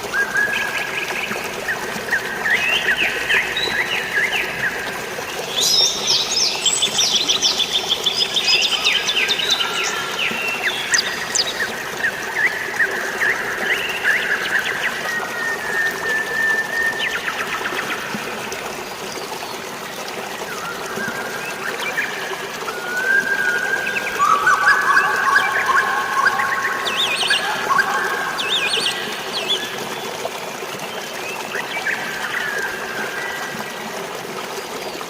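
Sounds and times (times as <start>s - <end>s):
running water: 0.0s - 35.0s
birds chirping and trilling: 0.9s - 15.4s, 23.1s - 30.0s.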